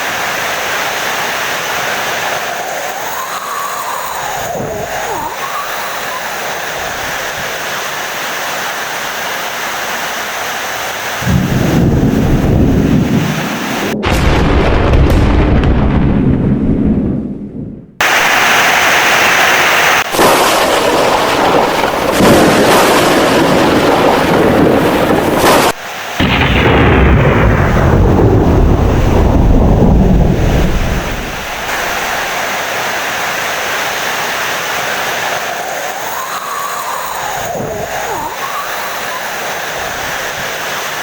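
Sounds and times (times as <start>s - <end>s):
heavy rain: 0.0s - 15.8s, 18.0s - 41.0s
thunder rumbling: 11.2s - 18.6s, 20.0s - 33.4s, 34.9s - 40.8s.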